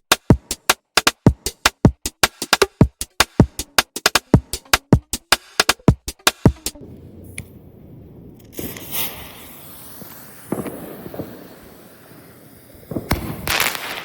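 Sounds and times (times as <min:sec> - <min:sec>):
fireworks bangs: 0:06.8 - 0:14.0.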